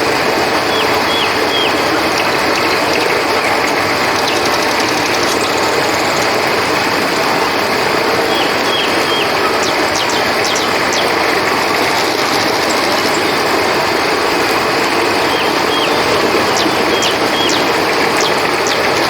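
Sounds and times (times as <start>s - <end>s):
crickets trilling: 0.0s - 19.0s
river water flowing: 0.0s - 19.0s.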